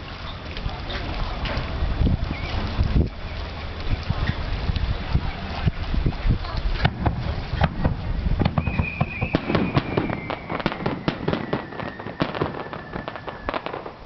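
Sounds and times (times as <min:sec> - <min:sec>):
fireworks cracking and popping: 0:06.8 - 0:14.0
descending firework whistle: 0:08.4 - 0:14.0.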